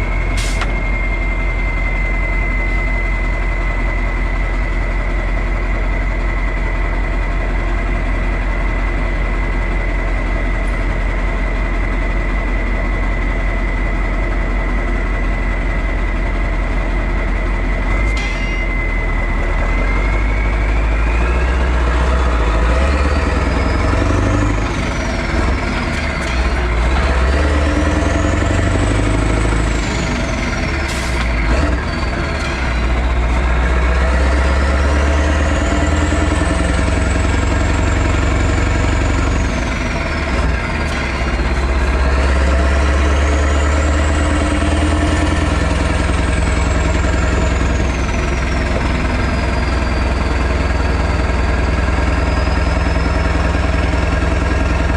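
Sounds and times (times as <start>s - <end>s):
high whine: 0.0s - 53.9s
diesel truck engine revving: 13.6s - 54.9s.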